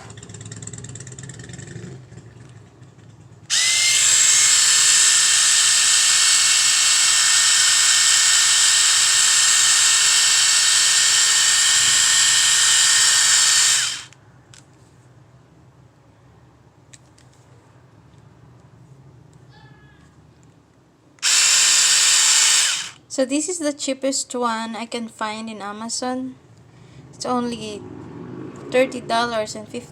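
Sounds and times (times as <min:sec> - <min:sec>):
epilator whirring: 0:03.5 - 0:14.2, 0:21.2 - 0:23.0.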